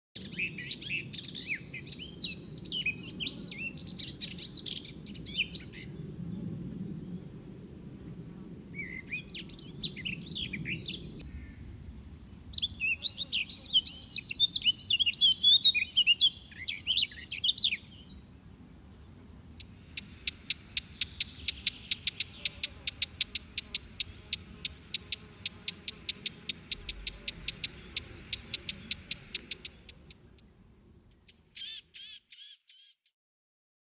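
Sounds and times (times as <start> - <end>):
songbirds chirping: 0.2 - 33.0
rapid repeated sharp bird notes: 19.6 - 30.5.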